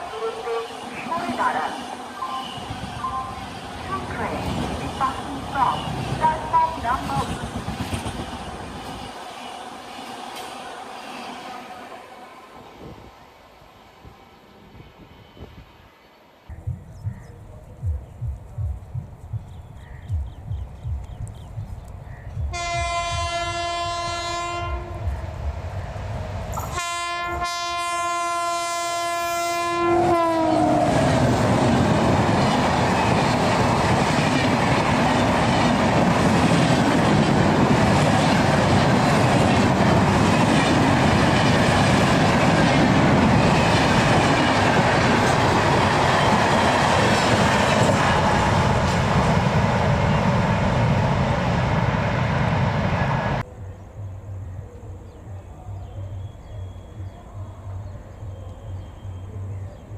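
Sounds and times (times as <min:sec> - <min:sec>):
train horn blasts: 0:00.0 - 0:01.7, 0:22.5 - 0:25.1, 0:26.6 - 0:31.0
train coaches rumbling past: 0:00.0 - 0:19.2, 0:20.1 - 0:59.9.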